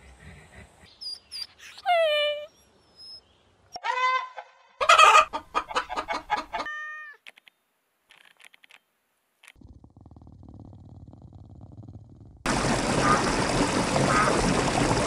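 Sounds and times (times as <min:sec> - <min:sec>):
hens clucking: 0:04.3 - 0:06.8
faint clicks: 0:07.2 - 0:08.8.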